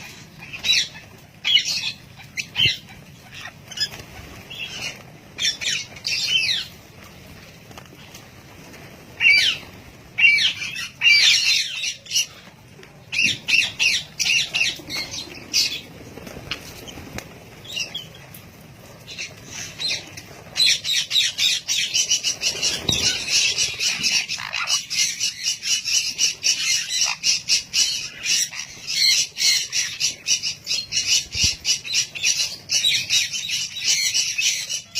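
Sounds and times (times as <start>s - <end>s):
parrots squawking: 0.0s - 6.8s, 9.1s - 12.5s, 19.1s - 34.9s.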